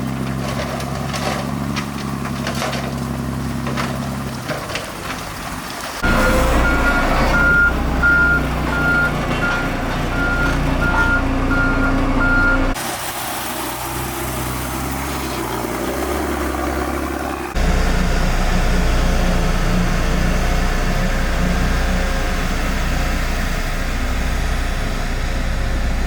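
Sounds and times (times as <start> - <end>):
reversing alarm beeping: 6.0 - 12.8
low engine running: 6.0 - 26.0.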